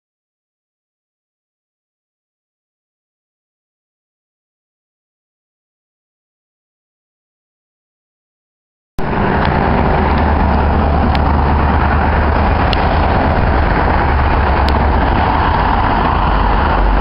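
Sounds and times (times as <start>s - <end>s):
car road and engine rumble: 9.0s - 17.0s.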